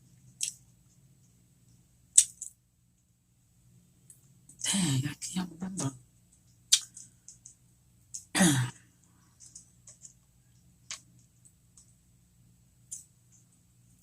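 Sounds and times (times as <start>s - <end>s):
wet chewing clicks: 6.4s - 8.3s.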